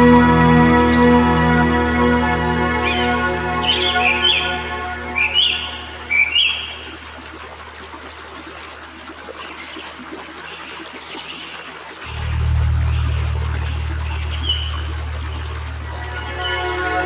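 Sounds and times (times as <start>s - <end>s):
water trickling: 3.6s - 17.0s
low steady hum: 12.1s - 17.0s.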